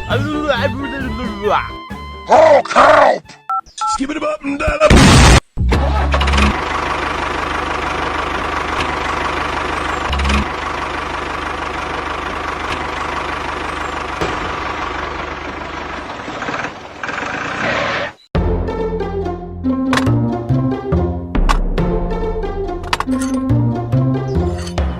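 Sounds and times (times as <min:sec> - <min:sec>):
tractor engine knocking rattle: 0:06.2 - 0:17.6.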